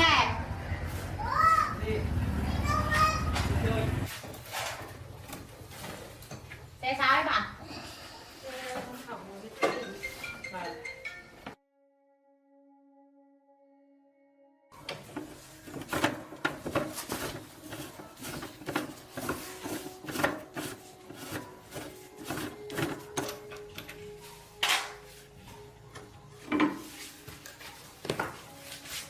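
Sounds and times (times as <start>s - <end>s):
tools and parts clattering: 14.8s - 25.1s.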